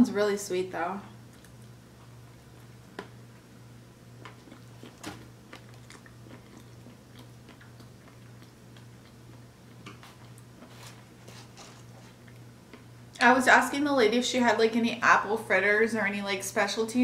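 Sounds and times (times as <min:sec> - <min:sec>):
steady low hum: 0:00.0 - 0:17.0
person chewing a donut: 0:01.1 - 0:13.1.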